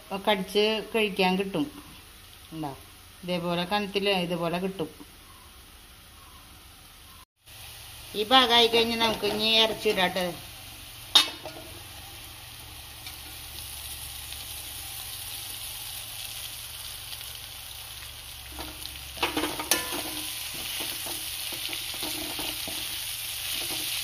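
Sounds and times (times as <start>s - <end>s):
chicken sizzling in a pan: 0.0s - 24.0s
steel spoon scraping a pan: 18.5s - 24.0s.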